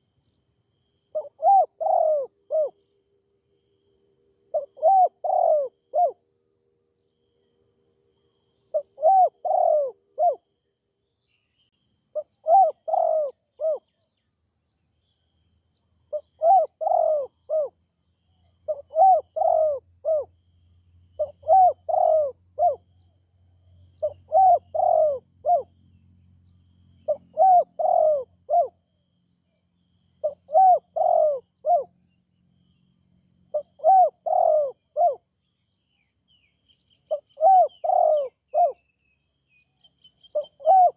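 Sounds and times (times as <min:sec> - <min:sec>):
dove cooing: 0:01.1 - 0:02.8, 0:04.5 - 0:06.2, 0:08.7 - 0:10.5, 0:12.2 - 0:13.9, 0:16.1 - 0:17.8, 0:18.7 - 0:20.3, 0:21.2 - 0:22.9, 0:24.0 - 0:25.7, 0:27.1 - 0:28.8, 0:30.2 - 0:31.9, 0:33.5 - 0:35.3, 0:37.1 - 0:38.8, 0:40.3 - 0:40.9.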